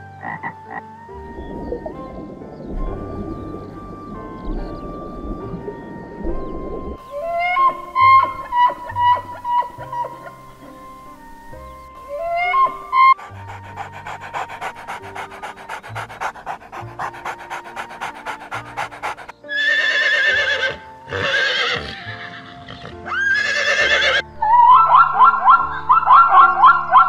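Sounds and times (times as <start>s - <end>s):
soft music: 0.0s - 27.0s
dog panting: 12.1s - 19.4s
horse whinnying: 19.5s - 24.2s.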